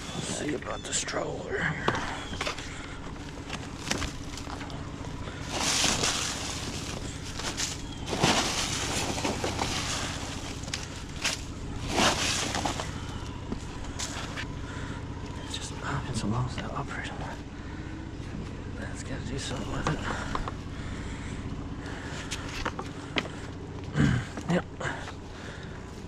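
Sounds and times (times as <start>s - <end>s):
steady low hum: 0.0s - 26.0s
stroller rattling and scraping: 2.0s - 14.5s.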